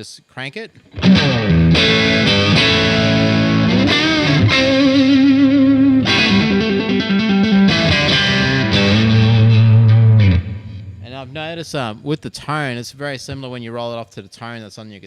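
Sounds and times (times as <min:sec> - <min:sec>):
distorted electric guitar riff: 0:00.9 - 0:11.7.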